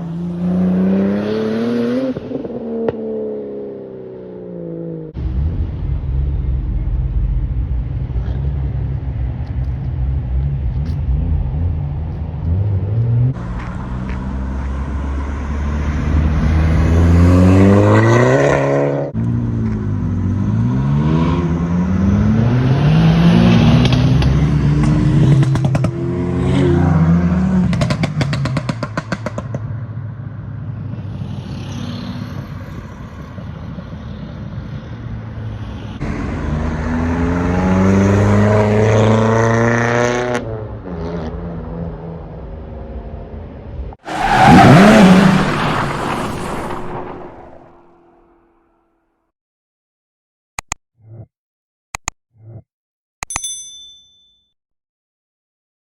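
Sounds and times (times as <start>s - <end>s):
car engines revving: 0.0s - 33.5s, 34.2s - 48.3s
exhaust crackles: 13.4s - 17.2s, 44.1s - 48.4s.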